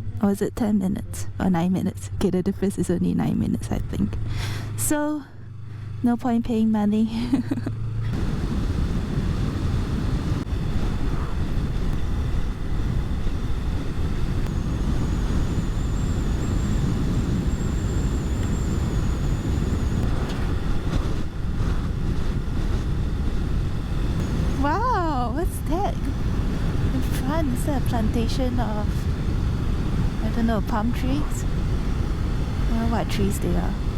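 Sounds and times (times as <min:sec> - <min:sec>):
faint high whine: 0:00.0 - 0:33.9
motorcycle engine rumble: 0:00.0 - 0:33.9
wind on microphone: 0:08.1 - 0:33.9.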